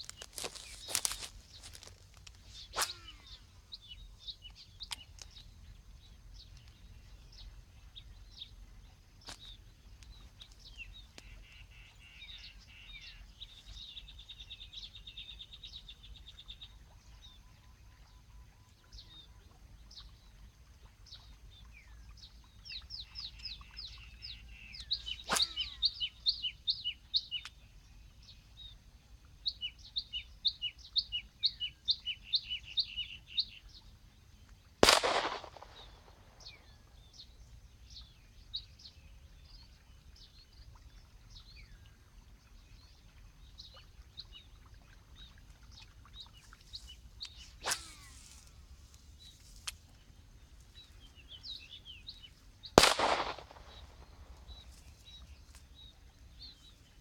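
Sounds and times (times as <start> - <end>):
small birds chirping and trilling: 0.0 - 28.8, 29.4 - 57.0
sharp clicks: 34.8 - 36.1, 52.8 - 54.0.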